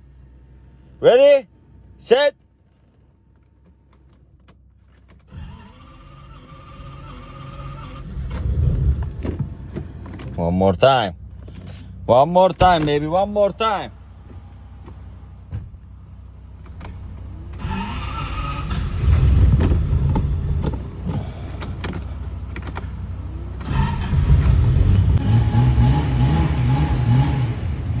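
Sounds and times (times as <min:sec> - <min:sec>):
car engine running unevenly: 0:02.7 - 0:28.0
starter motor cranking: 0:05.2 - 0:10.2, 0:16.7 - 0:23.0.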